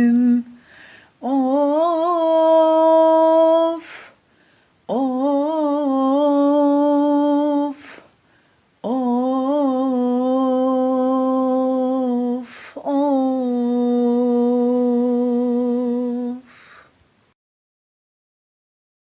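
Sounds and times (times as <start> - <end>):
person humming held notes: 0.0 - 4.2, 4.9 - 8.1, 8.8 - 16.9
person breathing: 0.5 - 1.2, 3.8 - 4.8, 7.7 - 8.8, 12.4 - 12.8, 16.4 - 17.0.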